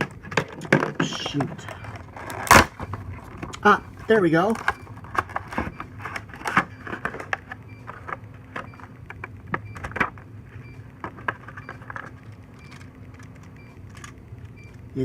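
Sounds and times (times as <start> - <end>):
plastic packaging crackling: 0.0 - 3.7
steady low hum: 0.0 - 15.0.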